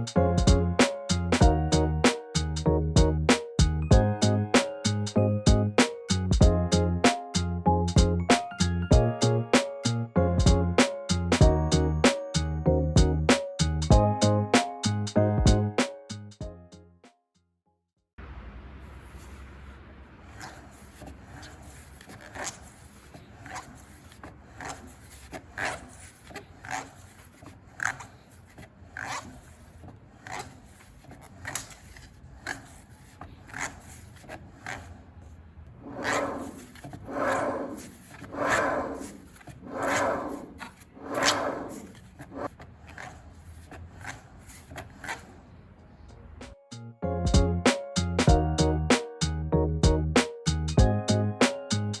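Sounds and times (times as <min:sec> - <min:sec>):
hand rubbing or scraping strokes: 0:18.9 - 0:45.5.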